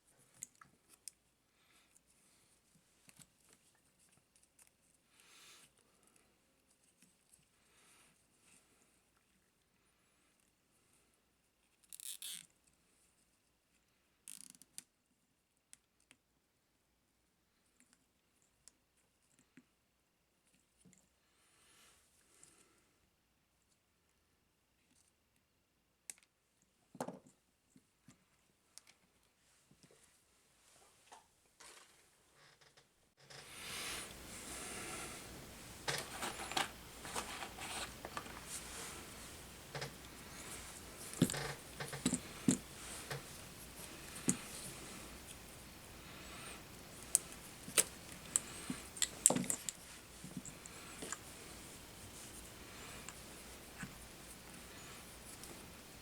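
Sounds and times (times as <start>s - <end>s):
rustling hiss: 33.4s - 56.0s
small parts and tools tapping: 39.6s - 45.5s, 46.3s - 51.3s.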